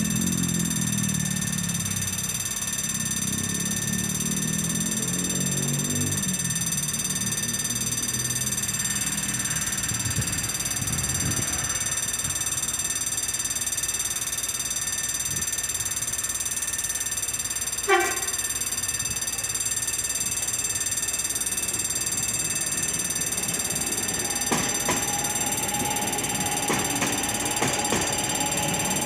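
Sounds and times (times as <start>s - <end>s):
level crossing warning signal: 0.0s - 29.0s
wheels clicking over rail joints: 0.0s - 29.0s
train rumbling past: 3.6s - 13.1s, 17.5s - 29.0s
train horn blast: 17.9s - 18.4s.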